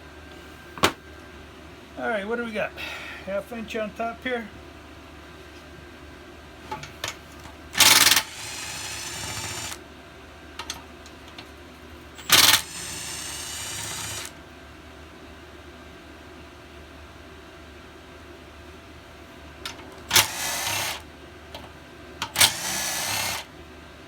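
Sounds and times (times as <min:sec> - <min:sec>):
bolt whirring as it spins out: 0:07.8 - 0:09.8, 0:12.2 - 0:14.4, 0:20.0 - 0:21.0, 0:22.2 - 0:23.5.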